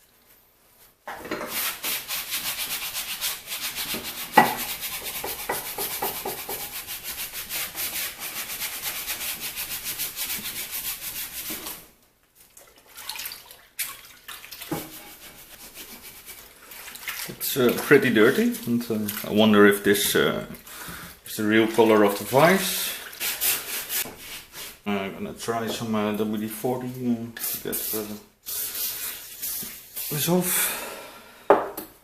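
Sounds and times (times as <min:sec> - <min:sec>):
rag scrubbing metal: 0:01.3 - 0:11.8
short scrapes and knocks: 0:03.8 - 0:06.8.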